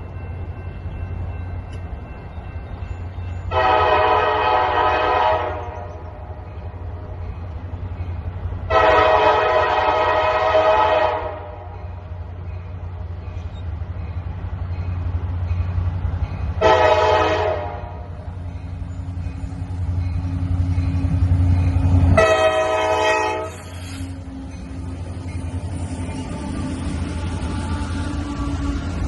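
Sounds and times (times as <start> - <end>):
locomotive engine rumble: 0.0 - 29.0
locomotive air horn blasts: 3.5 - 6.2, 8.7 - 11.7, 16.6 - 18.2, 22.0 - 24.2.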